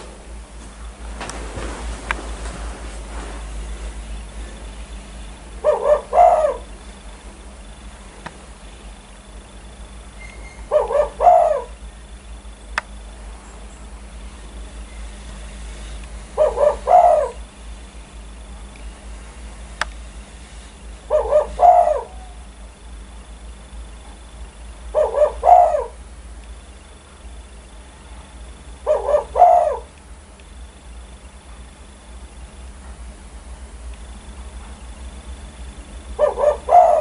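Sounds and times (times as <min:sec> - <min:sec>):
dove cooing: 0:03.6 - 0:07.6, 0:10.2 - 0:12.1, 0:14.8 - 0:17.8, 0:21.0 - 0:22.6, 0:24.2 - 0:26.2, 0:28.8 - 0:30.0, 0:36.0 - 0:37.0.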